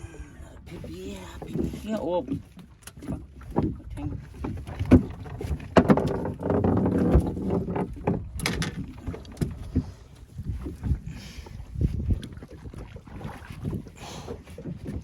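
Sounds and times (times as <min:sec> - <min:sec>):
fishing gear knocking in metal boat: 0:04.5 - 0:09.9.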